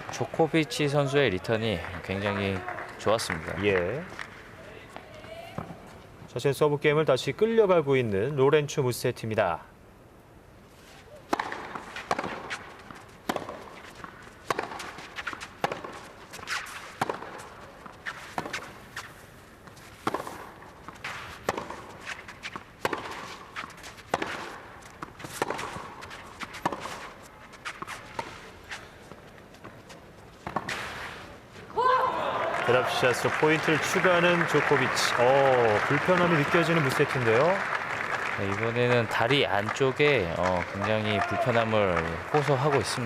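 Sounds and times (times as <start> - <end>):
footsteps on clay court: 0.0 - 6.1, 10.8 - 31.9, 32.6 - 43.0
racket striking tennis ball: 11.2 - 28.4, 30.4 - 31.2.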